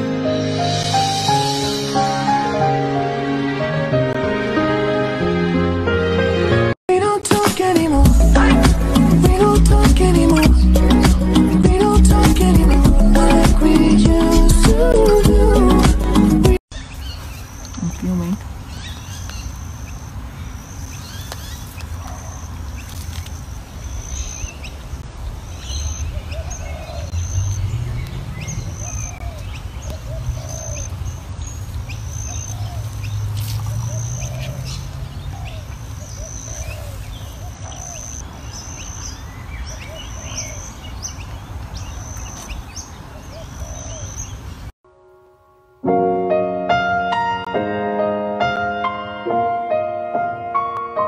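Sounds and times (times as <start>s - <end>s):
low outdoor rumble: 7.9s - 11.0s
birds chirping: 16.7s - 44.7s.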